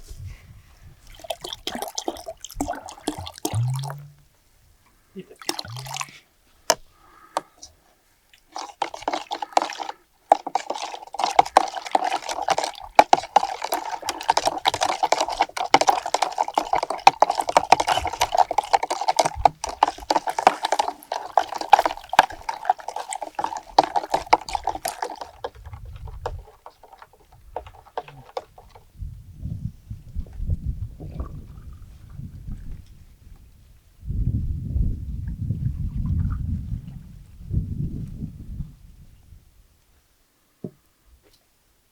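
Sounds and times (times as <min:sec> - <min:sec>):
water pouring into a container: 0:01.0 - 0:04.2, 0:05.3 - 0:06.2, 0:08.3 - 0:28.8.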